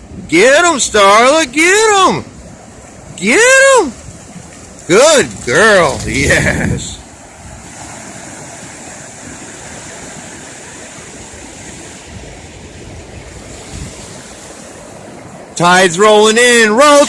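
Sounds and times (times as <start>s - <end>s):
surf washing onto beach: 0.0s - 17.0s.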